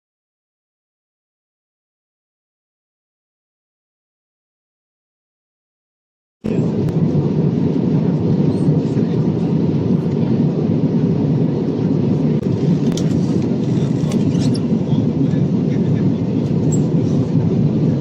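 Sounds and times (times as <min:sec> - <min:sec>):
airplane cabin rumble: 0:06.4 - 0:18.0.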